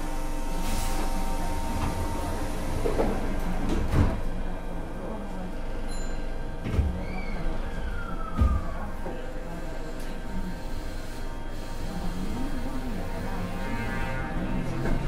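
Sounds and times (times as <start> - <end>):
electrical hum of train motor: 0.0 - 15.0.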